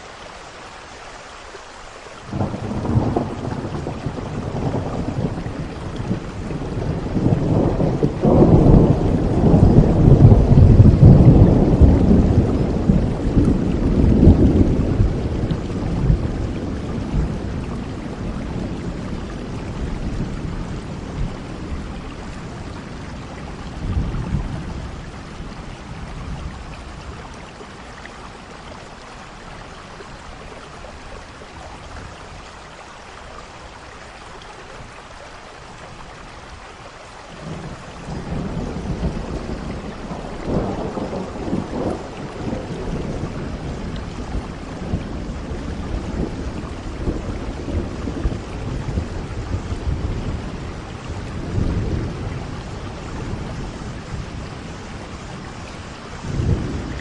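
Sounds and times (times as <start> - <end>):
steady rain: 0.0 - 57.0
rolling thunder: 2.3 - 27.6, 37.4 - 57.0.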